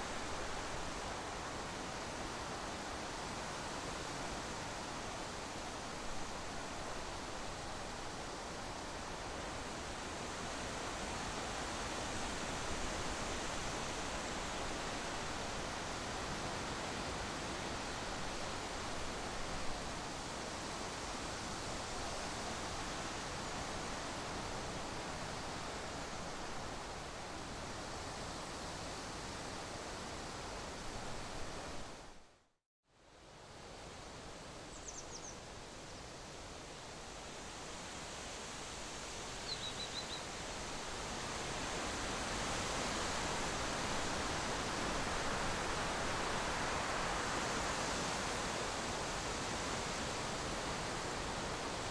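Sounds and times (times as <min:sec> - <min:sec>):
faint high bird chirps: 0:34.7 - 0:35.4, 0:39.4 - 0:40.3.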